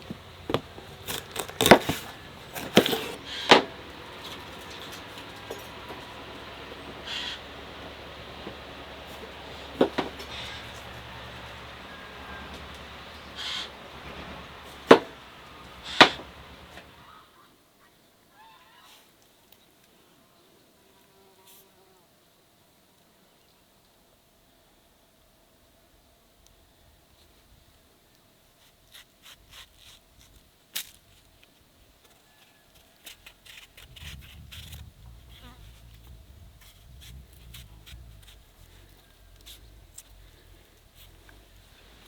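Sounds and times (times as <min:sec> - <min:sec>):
low steady hum: 0:00.0 - 0:17.1, 0:33.7 - 0:42.0
sharp knocks: 0:11.8 - 0:17.0
low rumble: 0:33.8 - 0:42.0.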